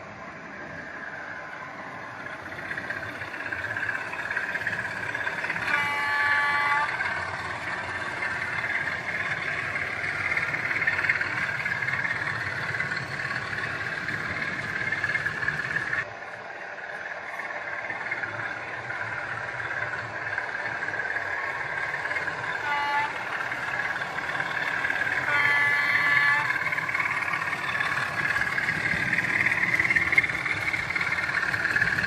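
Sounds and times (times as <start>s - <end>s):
model locomotive engine sound: 0.0s - 32.0s
locomotive horn: 5.2s - 8.8s, 22.5s - 23.7s, 24.6s - 26.8s.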